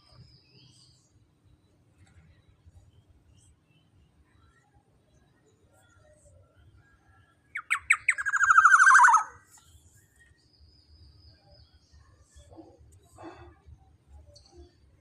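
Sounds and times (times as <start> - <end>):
bird harsh rattling call: 7.6 - 9.4.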